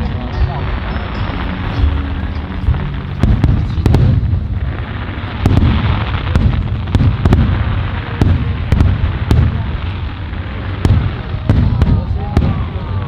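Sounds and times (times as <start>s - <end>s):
fireworks cracks and pops: 0.0s - 13.0s
fireworks rumbling: 0.0s - 13.0s.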